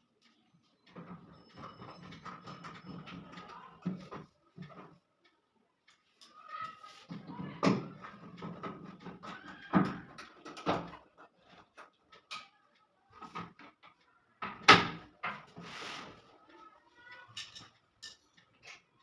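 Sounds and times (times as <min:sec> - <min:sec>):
parts knocking and clattering: 0:00.8 - 0:05.0, 0:07.0 - 0:12.6, 0:13.2 - 0:15.6, 0:17.3 - 0:19.0
brief scrape: 0:15.6 - 0:16.2.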